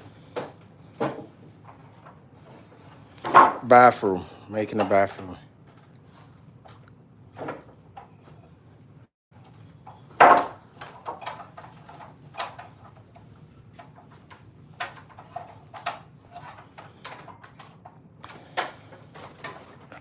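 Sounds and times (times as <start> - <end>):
building materials knocking and clattering: 0.3 - 2.6, 9.4 - 20.0.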